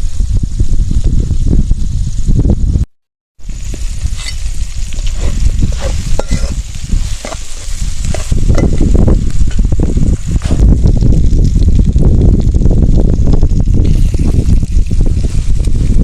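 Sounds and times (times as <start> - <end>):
curry sizzling in a pan: 3.4 - 16.0
spoon scraping a pan: 4.1 - 9.6.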